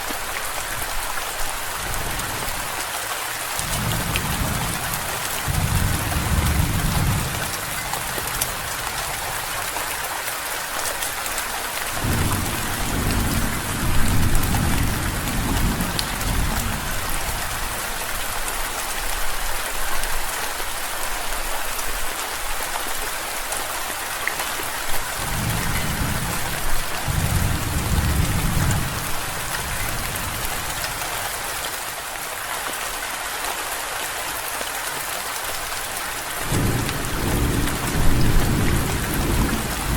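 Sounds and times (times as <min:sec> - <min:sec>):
heavy rain falling: 0:00.0 - 0:39.9
thunder rumbling: 0:03.6 - 0:09.3, 0:12.0 - 0:17.2, 0:25.2 - 0:31.0.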